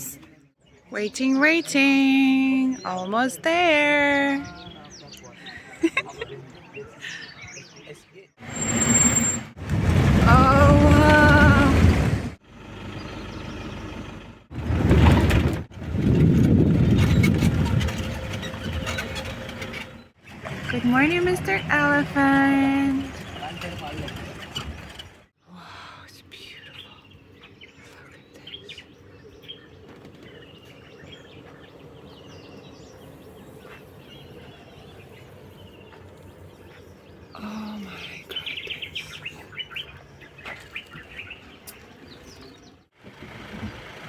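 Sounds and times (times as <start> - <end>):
birds chirping and trilling: 0.0 - 9.4, 16.8 - 25.2, 26.0 - 42.9
jeep engine rumble: 8.4 - 25.4, 28.5 - 44.0.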